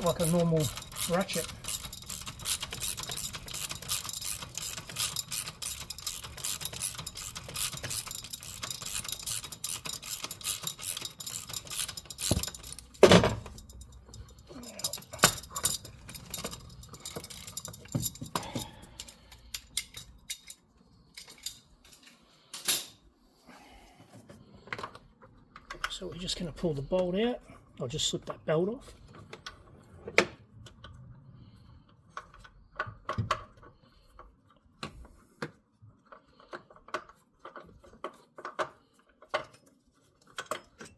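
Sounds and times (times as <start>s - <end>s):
ratchet wrench clicking: 0.0s - 17.9s.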